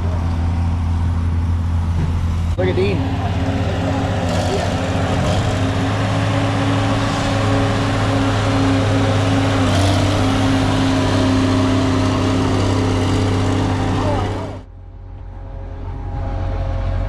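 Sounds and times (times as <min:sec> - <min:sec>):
vehicle engine running steadily: 0:00.0 - 0:17.0.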